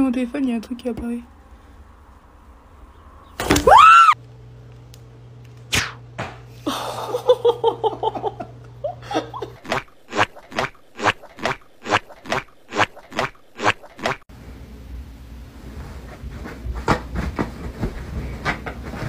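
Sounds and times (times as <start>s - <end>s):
steady low hum: 4.1s - 19.0s
quick pitched sounds: 9.6s - 14.2s.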